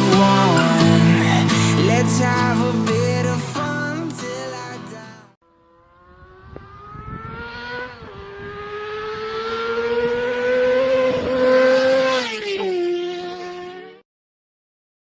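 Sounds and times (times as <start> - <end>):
dirt bike engine revving: 5.5 - 14.0.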